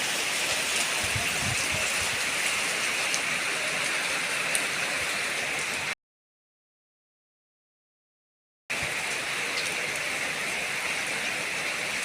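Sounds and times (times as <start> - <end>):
heavy rain hissing: 0.0 - 6.0.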